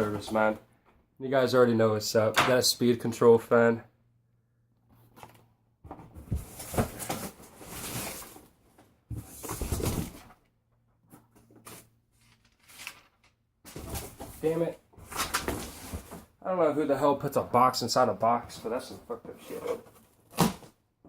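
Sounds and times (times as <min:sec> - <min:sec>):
cardboard and tape tearing: 0:19.5 - 0:20.7.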